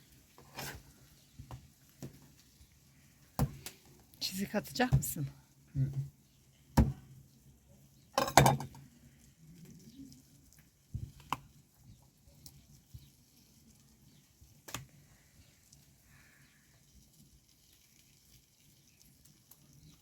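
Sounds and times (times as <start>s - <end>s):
kitchen utensils knocking: 8.2s - 8.7s.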